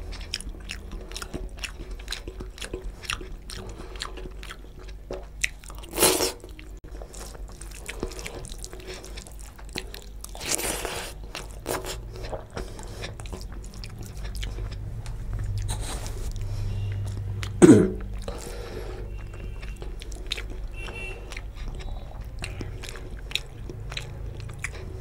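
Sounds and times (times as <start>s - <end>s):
person chewing food: 0.0s - 25.0s.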